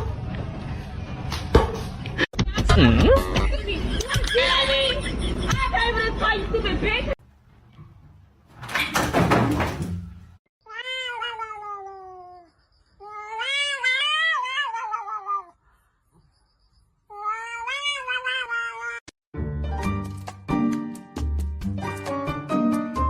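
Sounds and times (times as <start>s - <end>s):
cat meowing: 10.7s - 15.6s, 17.1s - 19.0s.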